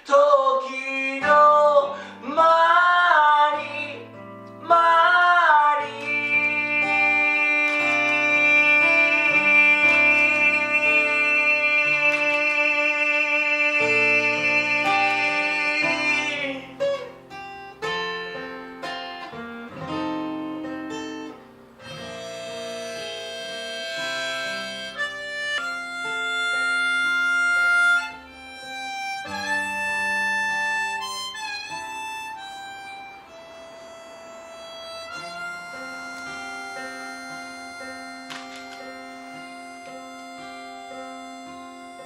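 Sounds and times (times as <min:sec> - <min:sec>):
strummed acoustic guitar: 0:00.0 - 0:42.0
harmonica melody: 0:00.6 - 0:42.0.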